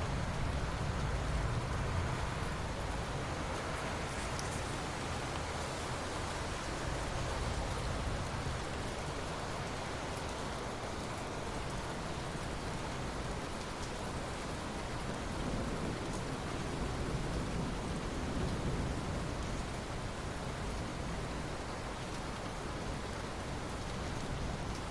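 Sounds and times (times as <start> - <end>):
rain falling on water: 0.0 - 24.9
raindrop ticks: 2.9 - 5.6.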